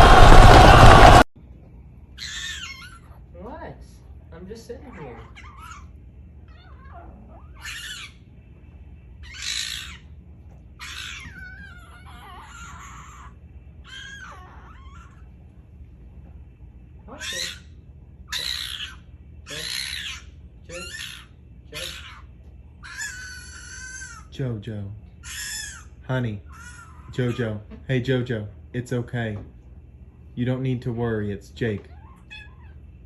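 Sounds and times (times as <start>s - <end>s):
young fox squealing: 2.2s - 3.2s, 4.8s - 5.9s, 6.5s - 8.2s, 9.2s - 10.2s, 10.8s - 15.3s, 17.1s - 24.3s, 25.2s - 27.6s, 31.9s - 32.8s.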